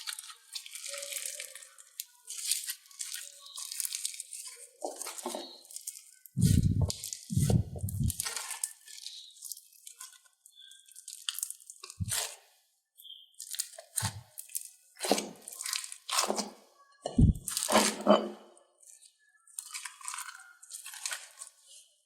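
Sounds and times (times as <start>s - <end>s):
slime crackling and popping: 0.0s - 12.4s, 13.4s - 16.4s, 19.5s - 21.6s
low thumps of pressed slime: 6.4s - 8.2s, 17.2s - 17.5s.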